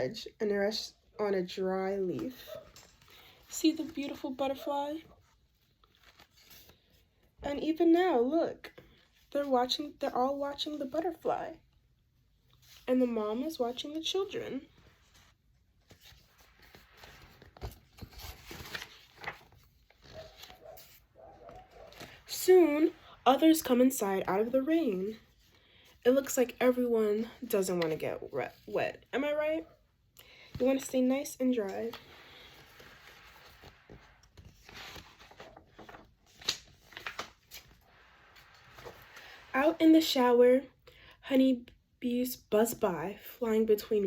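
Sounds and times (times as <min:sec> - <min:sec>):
soft handling rustling: 0:14.6 - 0:23.8, 0:30.4 - 0:39.6.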